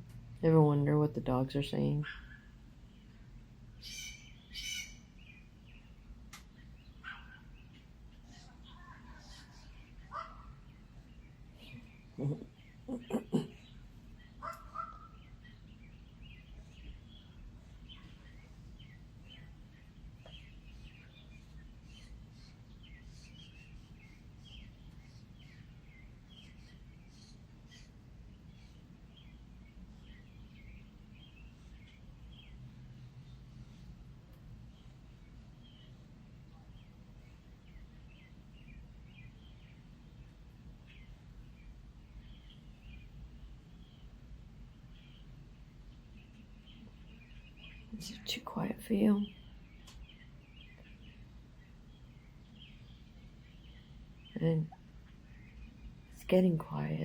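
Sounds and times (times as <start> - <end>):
birds chirping: 0.0 - 57.0
loud bird call: 3.8 - 5.1.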